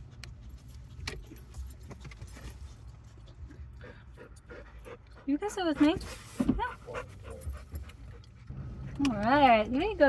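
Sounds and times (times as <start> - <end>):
low vehicle rumble: 2.8 - 10.0
collar tags jingling: 6.9 - 7.9.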